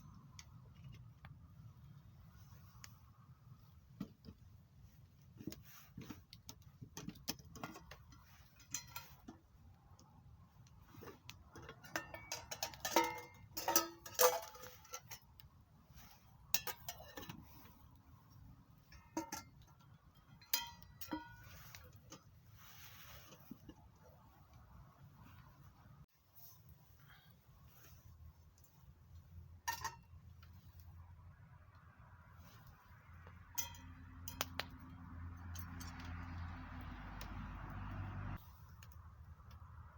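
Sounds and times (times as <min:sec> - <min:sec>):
metal cookware clinking: 0:07.6 - 0:09.4, 0:11.6 - 0:15.4, 0:16.0 - 0:17.7, 0:18.9 - 0:21.9, 0:29.7 - 0:30.1, 0:33.5 - 0:34.7.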